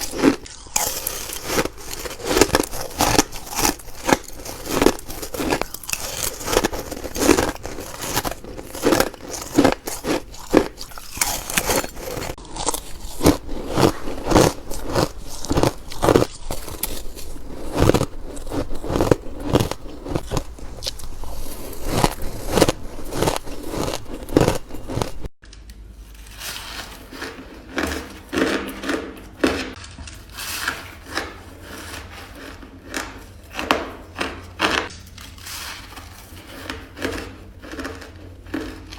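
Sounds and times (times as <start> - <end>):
person crunching ice: 0.0 - 25.4.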